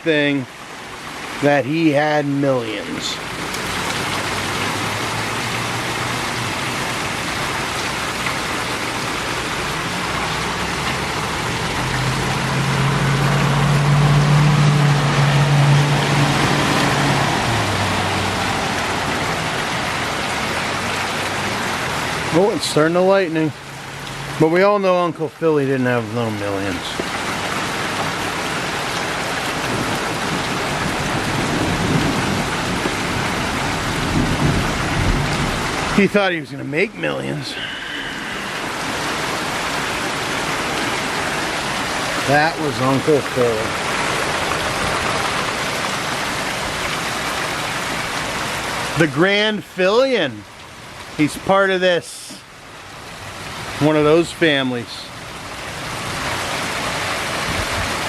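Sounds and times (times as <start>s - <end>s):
heavy rain falling: 0.0s - 58.0s
thunder rumbling: 29.6s - 36.1s.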